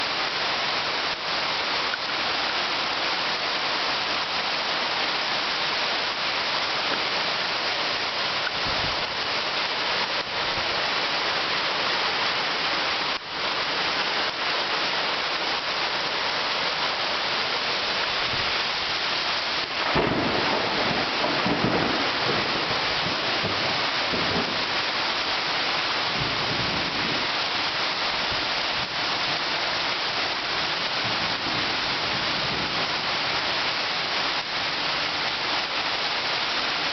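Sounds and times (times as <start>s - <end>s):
heavy rain pouring: 0.0s - 36.9s
thunder rumbling: 19.8s - 24.7s.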